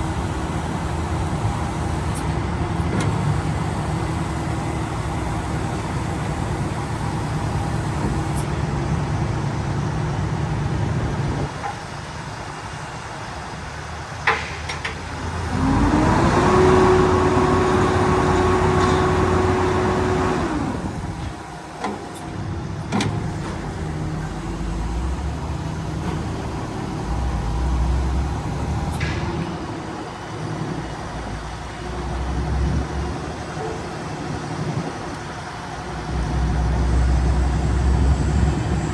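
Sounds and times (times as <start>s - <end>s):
diesel garbage truck idling: 0.0s - 38.9s
mechanical whine: 15.5s - 30.4s
sharp clunks: 28.7s - 29.5s.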